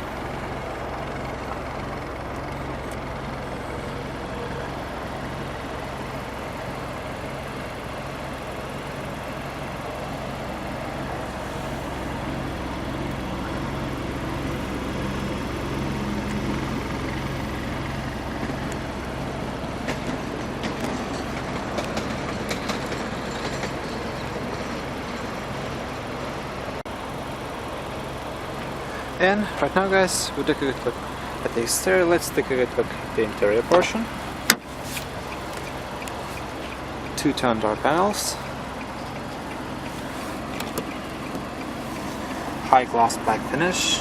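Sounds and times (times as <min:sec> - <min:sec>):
car engine idling: 0:00.0 - 0:44.0
sharp clicks and knocks: 0:19.8 - 0:24.0, 0:33.6 - 0:37.2, 0:38.4 - 0:42.4.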